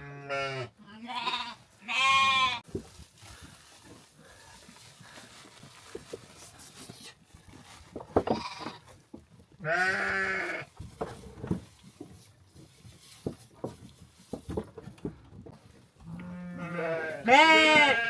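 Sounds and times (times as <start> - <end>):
livestock bleating: 0.0 - 2.6, 9.6 - 10.7, 16.1 - 18.0.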